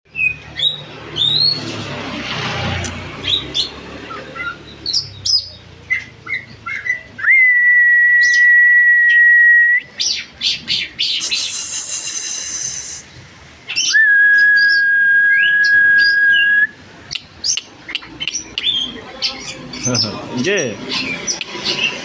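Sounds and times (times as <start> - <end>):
birds chirping: 0.1 - 22.0
long held bird whistle: 6.7 - 10.0, 11.1 - 13.2, 13.8 - 17.2.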